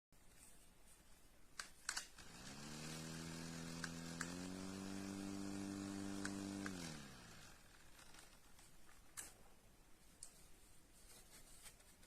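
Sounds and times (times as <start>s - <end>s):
small fan motor whirring: 2.2s - 8.4s.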